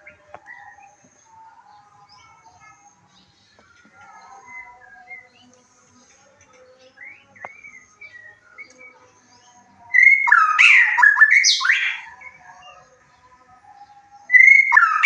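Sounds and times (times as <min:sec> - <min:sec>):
bird singing whistled notes: 0:06.9 - 0:09.1, 0:09.9 - 0:12.4, 0:14.0 - 0:15.0
harsh rasping bird phrase: 0:09.9 - 0:12.2.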